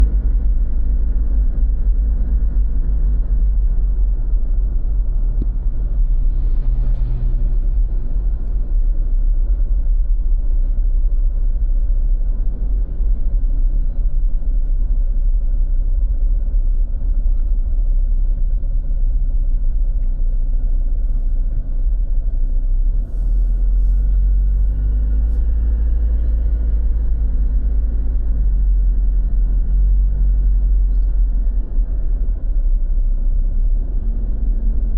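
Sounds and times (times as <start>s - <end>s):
vehicles passing: 0.0s - 14.8s
low noise on microphone: 0.0s - 34.9s
road traffic rumble: 0.0s - 34.9s.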